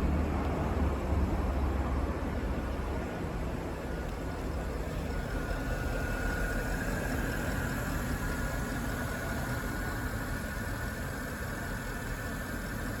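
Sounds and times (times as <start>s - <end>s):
car engine idling: 4.1s - 13.0s.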